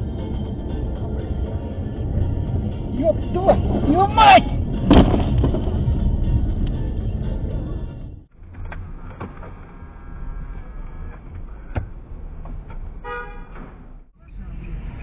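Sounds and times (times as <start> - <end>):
car engine and road rumble: 0.0 - 15.0
car horn beep: 13.0 - 13.7.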